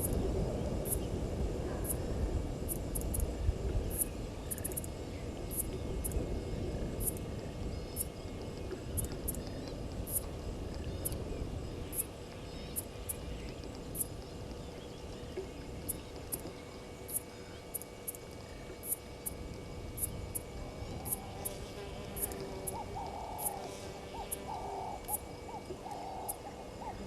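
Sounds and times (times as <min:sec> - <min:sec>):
high insect chirps: 0:00.0 - 0:01.2, 0:02.6 - 0:27.0.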